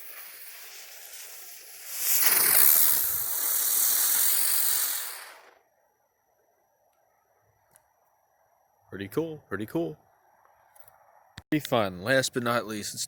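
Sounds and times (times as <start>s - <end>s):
spinning firework hissing: 0.0s - 5.6s.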